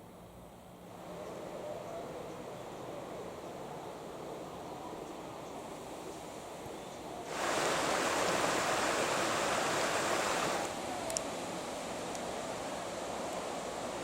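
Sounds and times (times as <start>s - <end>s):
waterfall rushing: 7.3s - 13.0s.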